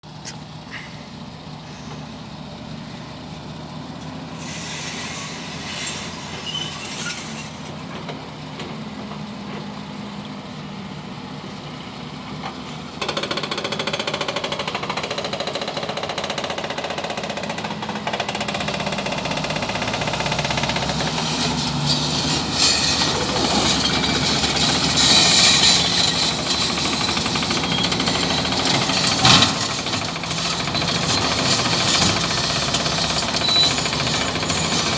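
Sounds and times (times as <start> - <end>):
bulldozer diesel engine: 0.0 - 34.9
clatter and rattling: 12.4 - 34.9.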